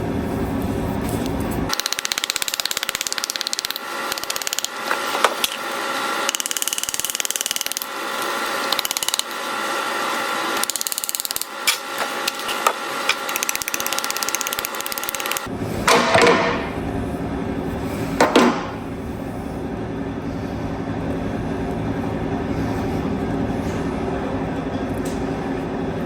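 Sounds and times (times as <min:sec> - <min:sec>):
rapid mechanical tapping: 0:01.7 - 0:15.5.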